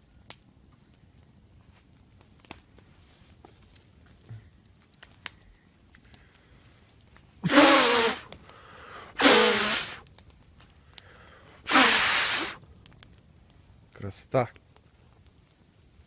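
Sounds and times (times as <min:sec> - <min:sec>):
faint crackles: 0:00.0 - 0:16.0
harsh bursts of voice and breath: 0:07.4 - 0:10.0, 0:11.1 - 0:12.6.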